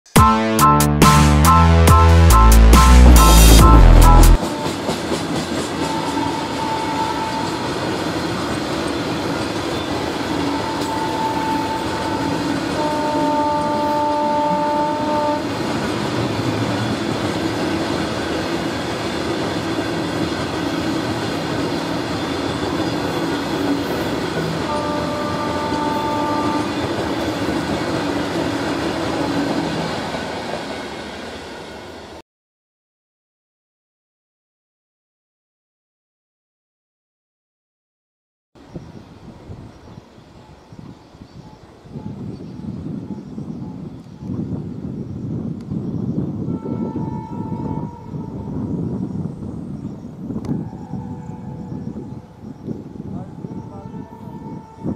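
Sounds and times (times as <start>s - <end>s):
locomotive horn blasts: 0.2s - 5.0s, 5.8s - 7.8s, 10.3s - 15.7s, 24.5s - 27.0s, 46.5s - 48.7s, 53.5s - 54.9s
freight train rumble and clatter: 2.3s - 32.2s, 41.5s - 54.9s.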